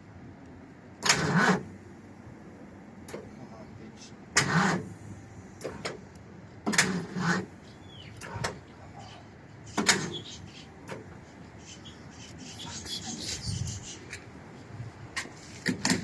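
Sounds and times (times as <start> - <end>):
mechanical clunks and knocks: 6.6 - 7.1, 9.8 - 10.2, 15.6 - 16.0.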